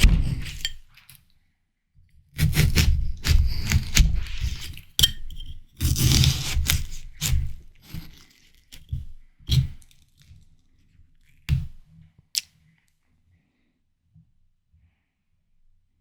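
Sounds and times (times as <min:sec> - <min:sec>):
watermelon crunching being chewed: 0:02.4 - 0:05.0, 0:05.8 - 0:10.3.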